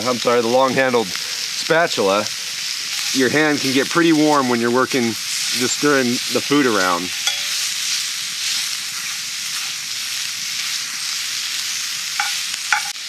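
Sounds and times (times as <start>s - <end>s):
sausage sizzling in a skillet: 0.0s - 13.0s
metal spatula stirring in a pan: 2.6s - 13.0s.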